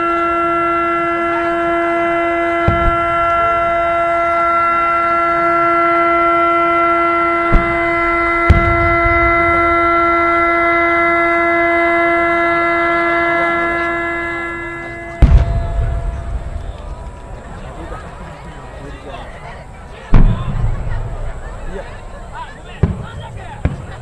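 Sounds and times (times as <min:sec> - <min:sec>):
long held tone: 0:00.0 - 0:22.7
firework shells bursting: 0:02.6 - 0:04.6, 0:07.4 - 0:11.4, 0:14.8 - 0:18.5, 0:20.1 - 0:24.0.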